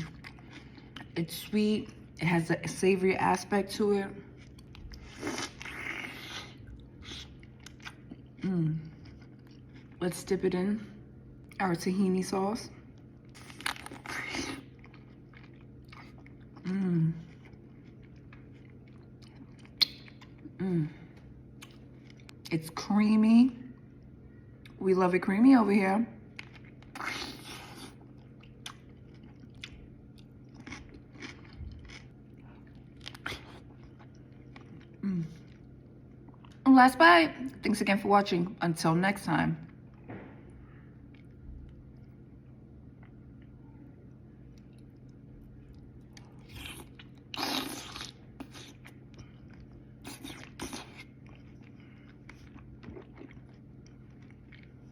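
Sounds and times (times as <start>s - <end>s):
chewing with moist mouth clicks: 0.0s - 2.1s, 4.3s - 10.0s, 12.8s - 22.6s, 26.3s - 36.6s, 39.6s - 54.9s
small wet mouth clicks: 19.8s - 20.2s.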